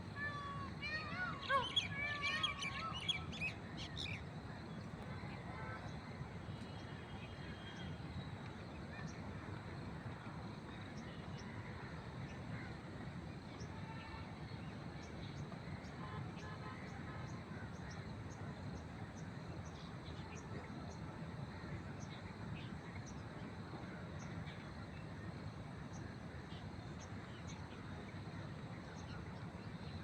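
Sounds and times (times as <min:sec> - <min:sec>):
low background noise: 0:00.0 - 0:30.0
birds chirping: 0:00.2 - 0:08.4.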